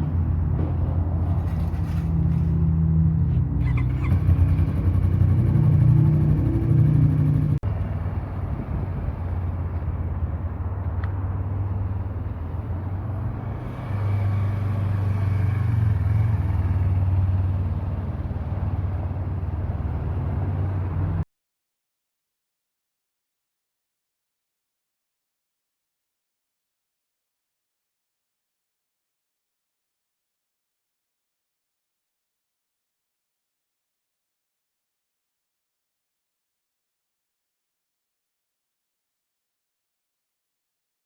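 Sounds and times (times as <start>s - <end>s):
motorcycle engine running: 3.6s - 7.8s, 13.6s - 20.8s.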